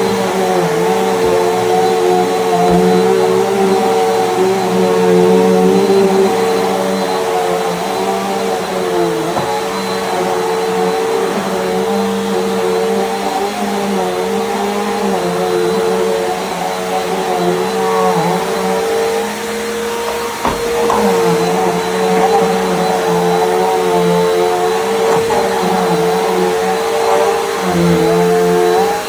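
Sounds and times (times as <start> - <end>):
upright vacuum running: 0.0 - 29.0.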